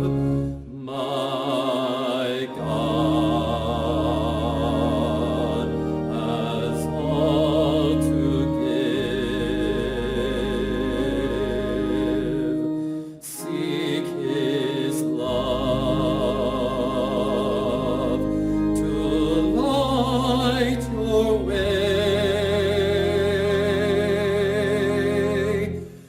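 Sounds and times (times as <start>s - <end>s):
sustained low accompaniment: 0.0s - 26.0s.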